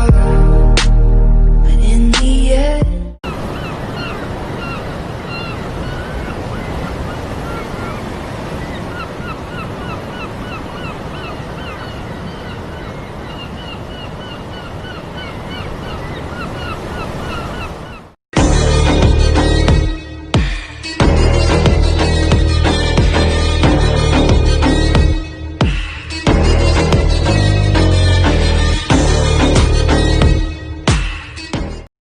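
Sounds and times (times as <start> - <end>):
birds honking: 3.2 - 18.2.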